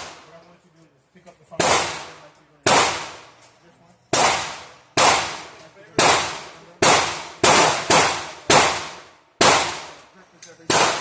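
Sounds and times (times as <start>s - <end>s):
gunshots: 0.0s - 0.3s, 1.6s - 3.3s, 4.1s - 10.0s, 10.6s - 11.0s.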